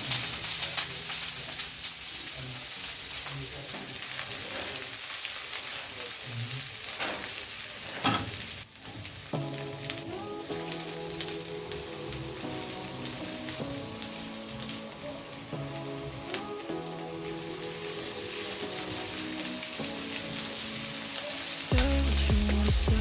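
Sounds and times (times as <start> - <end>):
gentle music with held notes: 0.0 - 3.3, 9.2 - 23.0
food sizzling in a hot pan: 0.0 - 23.0
soft hiss: 0.0 - 23.0.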